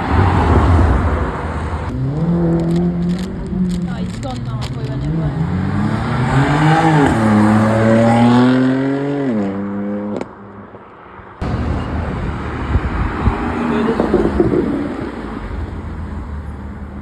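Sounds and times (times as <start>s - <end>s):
car engine revving: 0.0s - 10.3s
loud rough rumble with pops: 11.4s - 15.7s.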